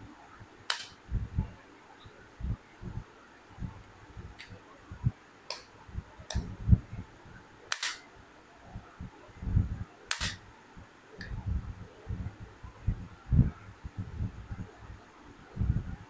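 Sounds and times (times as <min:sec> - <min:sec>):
plastic parts clicking: 0:00.7 - 0:01.0, 0:07.7 - 0:08.0, 0:10.1 - 0:10.4
soft low bumps: 0:05.9 - 0:07.1, 0:11.2 - 0:14.8, 0:15.5 - 0:16.0.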